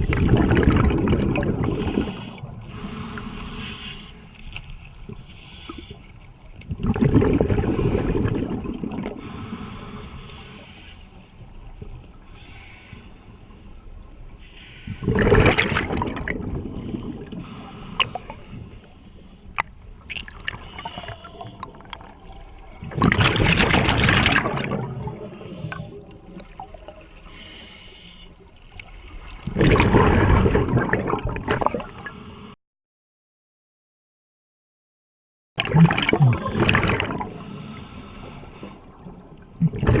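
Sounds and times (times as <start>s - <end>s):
gurgling exhaled bubbles: 0.0s - 2.4s, 6.6s - 9.3s, 15.0s - 17.4s, 20.1s - 27.0s, 29.4s - 32.0s, 35.6s - 37.4s, 39.0s - 40.0s
faint hiss: 9.2s - 15.0s.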